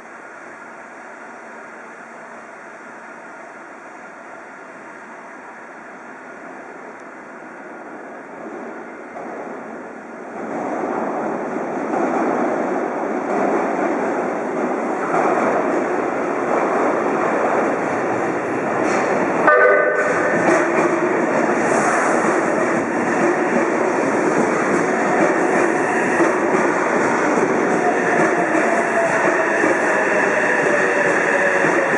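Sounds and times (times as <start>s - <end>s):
subway train rumbling: 0.0s - 31.9s
train horn blast: 19.4s - 20.3s.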